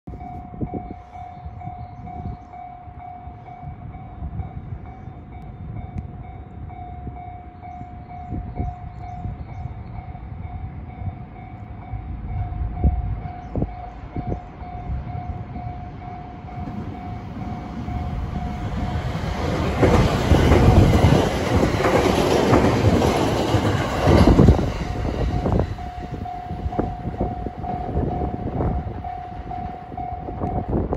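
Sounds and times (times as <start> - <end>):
train wheels clattering over joints: 16.6 - 28.2
level crossing alarm ringing: 24.5 - 30.7.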